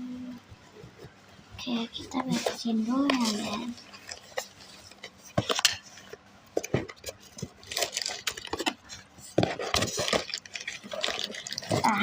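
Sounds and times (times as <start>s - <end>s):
containers knocking and clinking: 6.6s - 12.0s.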